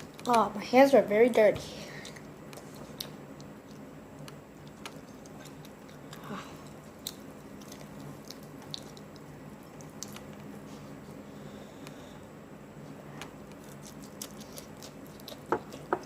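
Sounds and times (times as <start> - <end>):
person chewing food: 1.9 - 10.7, 13.2 - 16.0.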